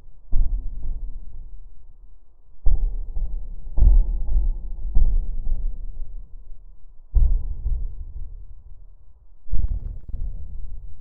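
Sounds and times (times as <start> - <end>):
deep cinematic boom: 9.6 - 11.0.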